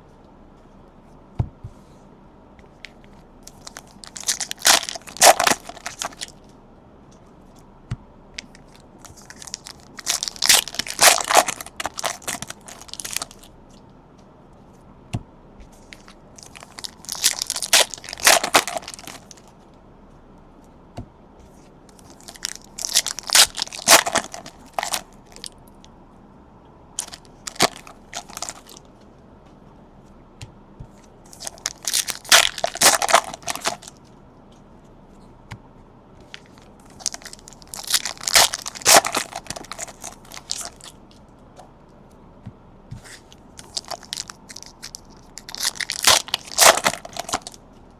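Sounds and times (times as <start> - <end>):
foil wrappers tearing and crinkling: 3.5 - 6.3, 8.4 - 13.5, 16.0 - 19.5, 22.0 - 25.5, 27.0 - 28.8, 31.3 - 34.0, 36.4 - 40.9, 43.6 - 47.6
card handling: 8.4 - 13.5, 15.8 - 19.5, 21.9 - 25.5, 27.0 - 28.8, 31.3 - 34.0, 36.3 - 40.9.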